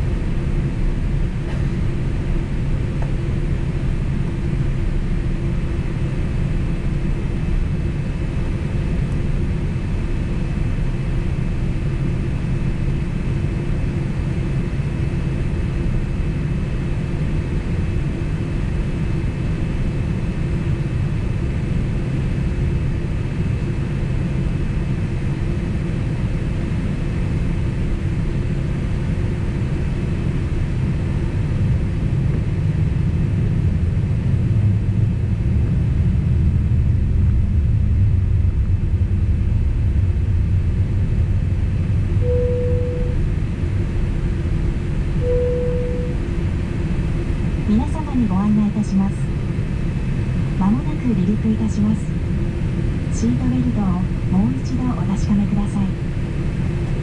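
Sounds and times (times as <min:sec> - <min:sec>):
aircraft cabin rumble: 0:00.0 - 0:57.0
faint steady whine: 0:37.5 - 0:57.0.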